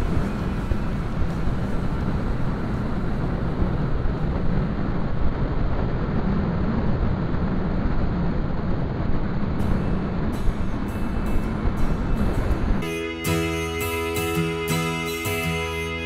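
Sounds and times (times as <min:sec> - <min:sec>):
motorcycle riding: 0:00.0 - 0:10.8
wind rushing: 0:00.0 - 0:12.9.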